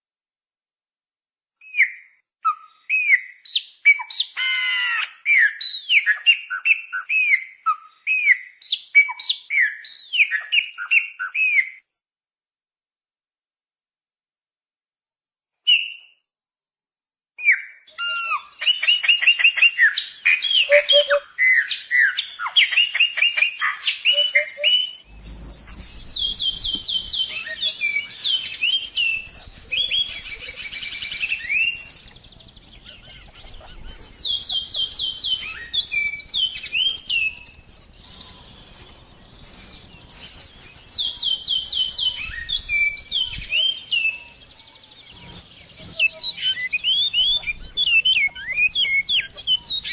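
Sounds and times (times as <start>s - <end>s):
songbird singing trilled phrases: 17.4s - 49.9s.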